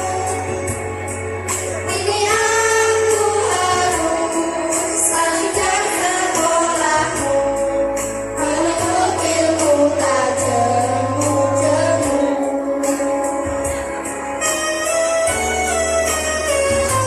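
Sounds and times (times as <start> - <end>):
backing accompaniment with bass: 0.0 - 17.0
children's choir singing: 1.9 - 7.4, 8.4 - 13.1.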